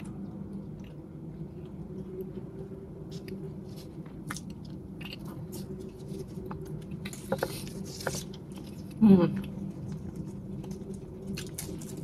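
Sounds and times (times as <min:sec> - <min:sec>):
chewing sticky rice cake: 0:00.0 - 0:12.0
low steady hum: 0:00.0 - 0:12.0
papery leaf wrapper crinkle: 0:03.6 - 0:12.0.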